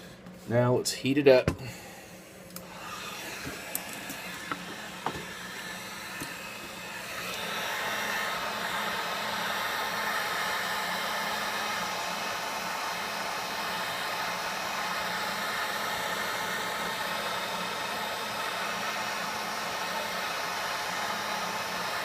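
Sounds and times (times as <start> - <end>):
heat gun blowing: 1.5 - 22.0.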